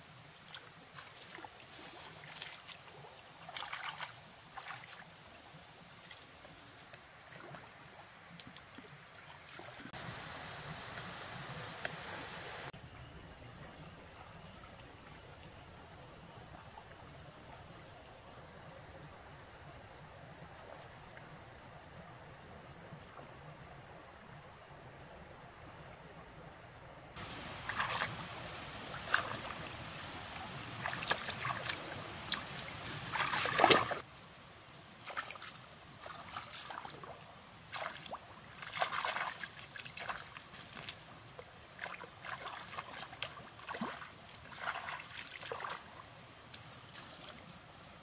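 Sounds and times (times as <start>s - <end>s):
insect chirping: 0.0s - 48.0s
water splashing and sloshing: 0.3s - 12.8s, 27.2s - 34.1s, 34.9s - 48.0s.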